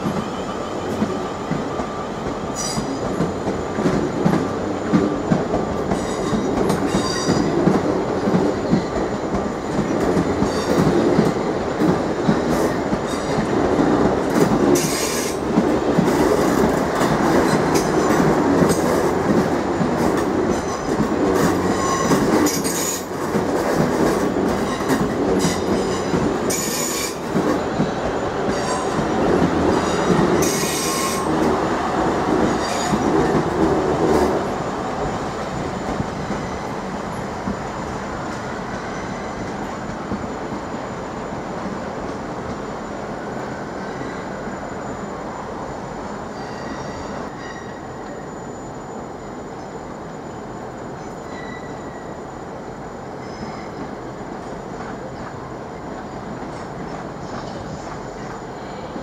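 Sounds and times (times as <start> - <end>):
train rumbling slowly: 0.0 - 59.0.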